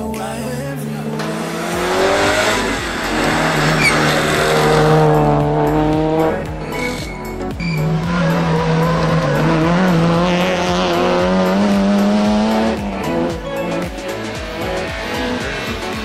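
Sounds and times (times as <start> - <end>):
background music: 0.0 - 16.0
rally car engine at high revs: 0.7 - 16.0
tyre squeal: 3.7 - 4.8, 6.7 - 9.9.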